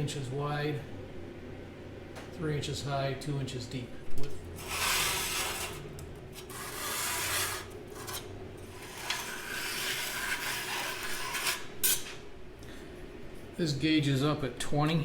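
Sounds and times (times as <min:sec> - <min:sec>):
rubbing strokes on sheet steel: 0:04.6 - 0:11.7.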